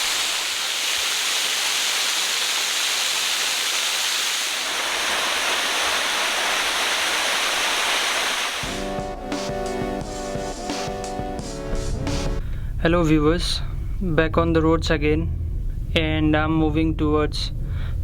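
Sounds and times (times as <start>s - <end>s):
waterfall rushing: 0.0s - 8.9s.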